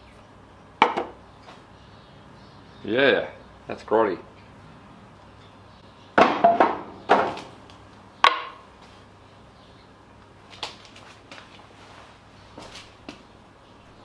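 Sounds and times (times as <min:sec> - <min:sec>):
hard objects knocking: 0:00.8 - 0:01.2, 0:06.2 - 0:07.4, 0:08.2 - 0:08.6.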